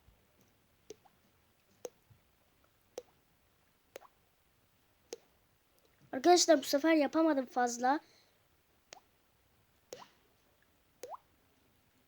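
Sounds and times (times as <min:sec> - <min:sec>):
mouth imitating water drips: 0:00.9 - 0:01.1, 0:03.0 - 0:03.2, 0:03.9 - 0:04.2, 0:05.1 - 0:06.0, 0:11.0 - 0:11.3.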